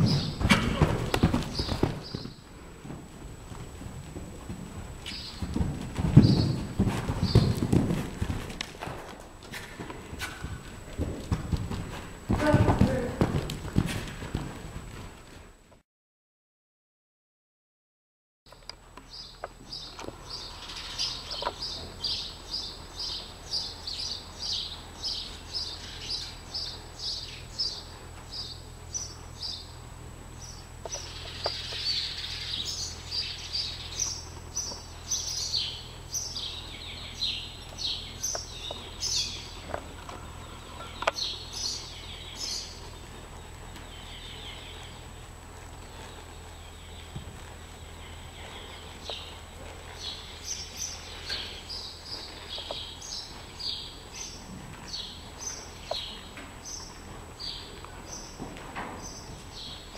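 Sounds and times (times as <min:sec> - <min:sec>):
small birds chirping: 0:01.1 - 0:02.4, 0:05.0 - 0:05.5, 0:06.2 - 0:07.8, 0:19.0 - 0:29.8, 0:30.4 - 0:58.4, 0:59.0 - 0:59.9.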